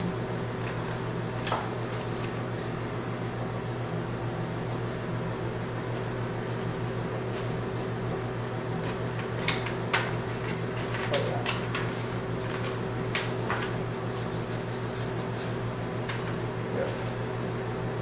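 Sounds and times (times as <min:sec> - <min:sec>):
low electrical hum: 0:00.0 - 0:18.0
paper pages rustling: 0:08.8 - 0:16.4.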